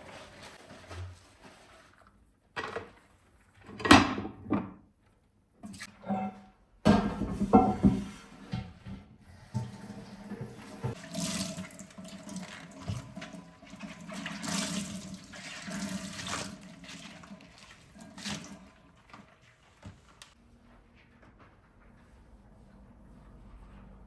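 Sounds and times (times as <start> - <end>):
tap water running into sink: 9.4 - 18.8.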